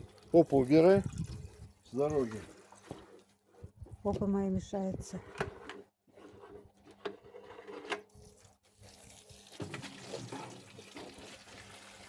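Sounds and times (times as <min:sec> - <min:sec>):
water running into watering can: 0:00.0 - 0:03.2, 0:08.1 - 0:12.0.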